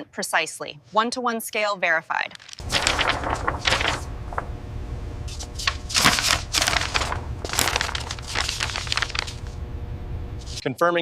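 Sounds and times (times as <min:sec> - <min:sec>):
rustling handling noise: 0:02.3 - 0:04.5, 0:05.3 - 0:09.6, 0:10.4 - 0:10.6
low hum: 0:02.6 - 0:10.6.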